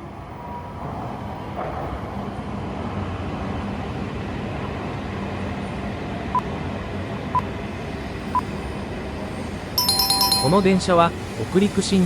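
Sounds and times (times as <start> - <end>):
train rumbling: 0.0 - 12.0
short high beeps: 9.8 - 10.8.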